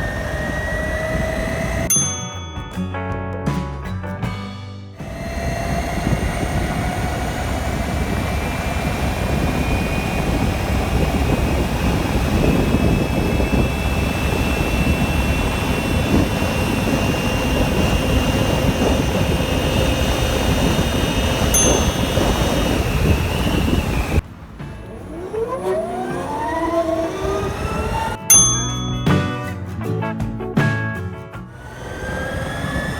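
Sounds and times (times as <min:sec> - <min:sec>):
electric motor whine: 0:00.0 - 0:02.0, 0:05.0 - 0:28.4, 0:31.6 - 0:32.9
wind and road noise: 0:00.0 - 0:02.7, 0:05.0 - 0:29.2, 0:31.5 - 0:32.9
rising sweeping tones: 0:05.0 - 0:29.1, 0:31.6 - 0:32.9.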